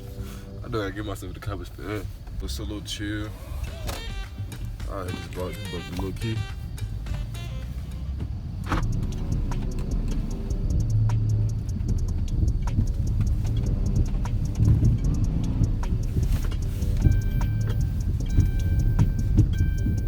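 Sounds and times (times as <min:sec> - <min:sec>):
music with ticking beat: 0:02.4 - 0:20.0
car engine revving hard: 0:07.0 - 0:20.0.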